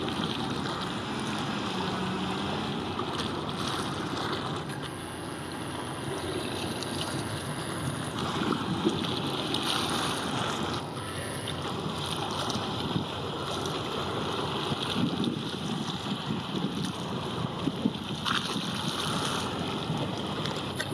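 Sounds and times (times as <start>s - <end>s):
wash of open water: 0.0s - 20.9s
wind buffeting microphone: 11.7s - 13.5s, 14.3s - 20.9s.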